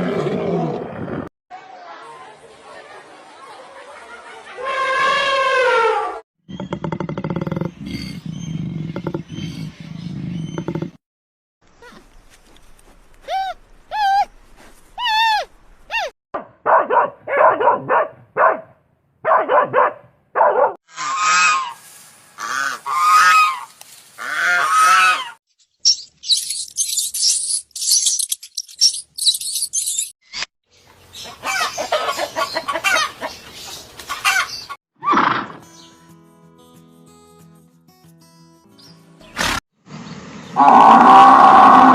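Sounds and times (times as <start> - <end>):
fowl squawking and honking: 20.9 - 21.8, 22.4 - 25.4, 34.1 - 34.6.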